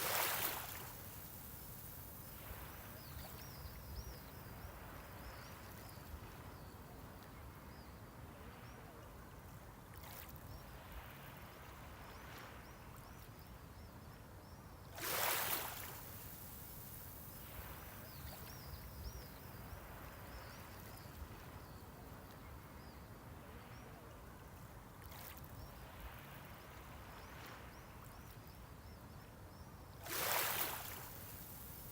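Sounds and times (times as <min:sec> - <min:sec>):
wave breaking and washing up: 0:00.0 - 0:03.0, 0:30.1 - 0:31.9
small waves lapping at shore: 0:00.0 - 0:31.9.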